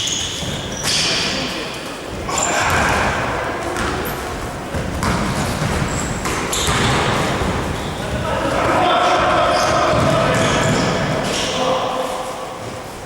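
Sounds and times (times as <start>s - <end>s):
short high squeaks: 0.0s - 1.2s
echoing hall noise: 0.0s - 13.0s
basketball bouncing on court: 2.6s - 11.0s.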